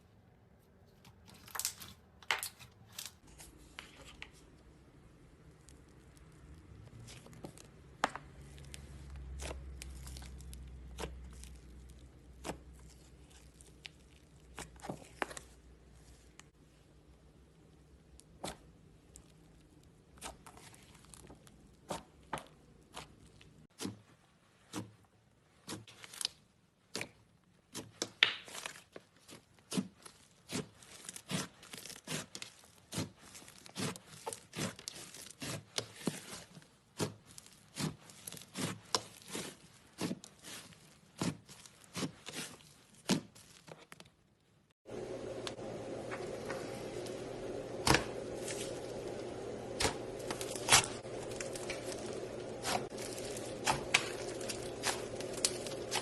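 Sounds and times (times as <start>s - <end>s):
slime squished by hand: 5.3s - 16.2s, 25.6s - 44.0s, 47.8s - 56.0s.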